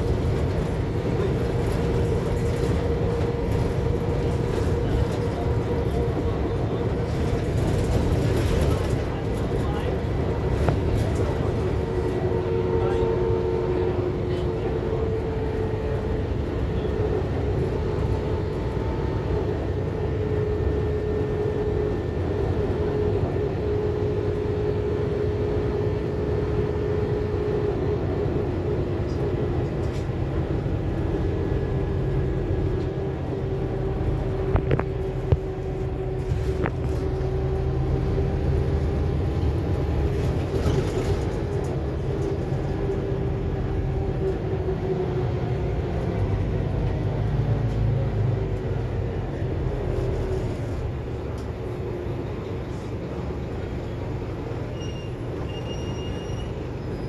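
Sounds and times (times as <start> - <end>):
bus interior rumble: 0.0 - 57.0
drivetrain whine: 28.0 - 47.8.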